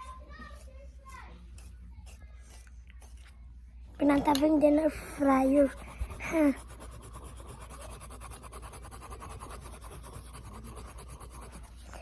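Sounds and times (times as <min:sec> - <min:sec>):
pencil scratching on paper: 0:00.0 - 0:03.4, 0:04.0 - 0:12.0.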